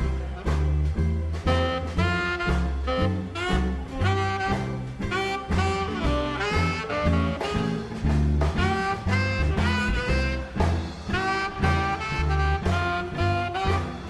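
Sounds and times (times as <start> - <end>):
saxophone and brass: 0.0 - 14.0
upright bass notes: 0.0 - 14.0.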